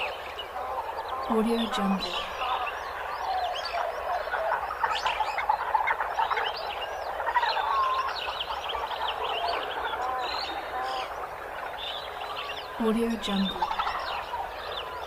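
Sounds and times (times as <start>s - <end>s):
birds chirping: 0.0s - 15.0s
frogs croaking: 0.0s - 15.0s.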